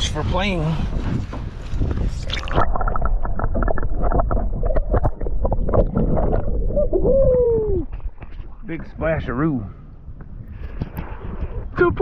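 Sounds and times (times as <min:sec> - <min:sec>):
wind buffeting microphone: 0:00.0 - 0:12.0
water splashing: 0:01.6 - 0:08.7.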